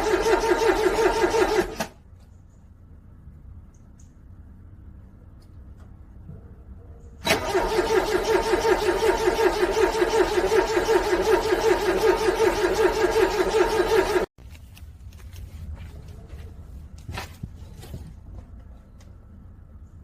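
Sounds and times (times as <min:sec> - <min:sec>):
car starter cranking engine: 0:00.0 - 0:02.0, 0:07.2 - 0:14.3.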